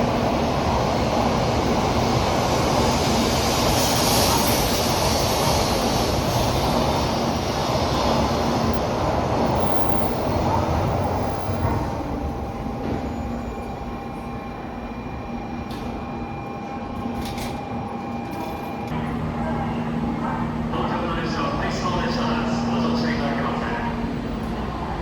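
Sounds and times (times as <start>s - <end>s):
train rushing past: 0.0s - 15.1s
whining tones over hum: 9.5s - 24.4s.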